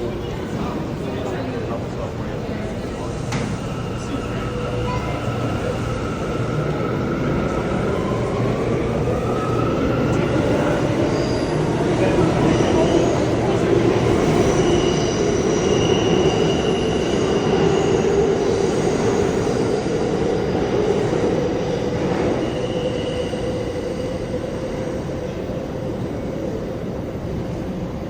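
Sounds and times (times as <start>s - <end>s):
subway train rumbling on rails: 0.0s - 28.0s.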